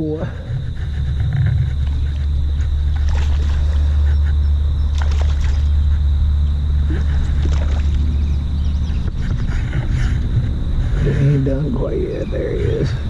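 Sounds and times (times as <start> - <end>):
steady low rumble: 0.0 - 13.0
water splashing and sloshing: 0.4 - 10.2.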